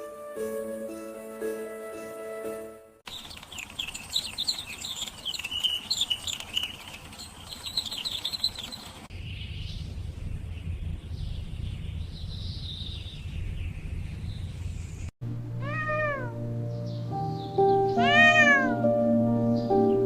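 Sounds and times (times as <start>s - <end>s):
background music: 0.0s - 3.0s, 15.2s - 20.0s
faint warbling chirps: 3.1s - 9.0s
cat meowing: 15.6s - 16.4s, 18.0s - 18.8s.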